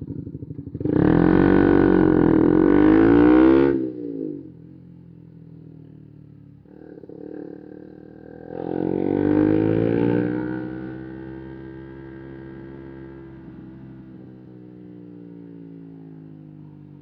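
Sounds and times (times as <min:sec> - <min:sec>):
motorcycle engine revving: 0:00.0 - 0:04.7, 0:06.6 - 0:14.6.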